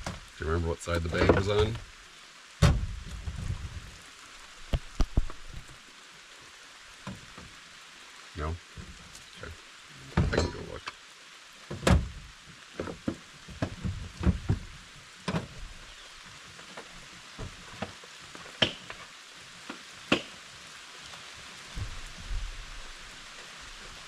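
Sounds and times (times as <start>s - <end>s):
steady rain hissing: 0.0s - 24.0s
knocks and clunks: 1.0s - 1.8s, 2.6s - 3.8s, 10.1s - 10.8s, 11.7s - 12.2s, 12.8s - 14.7s.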